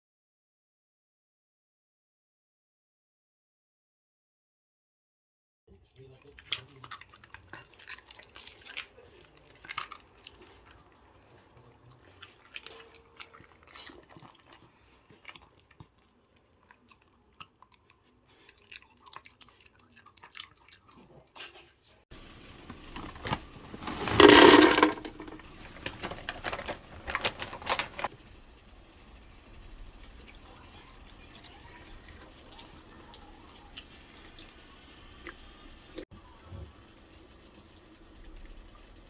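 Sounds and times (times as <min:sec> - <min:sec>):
dog chewing: 0:06.0 - 0:21.7.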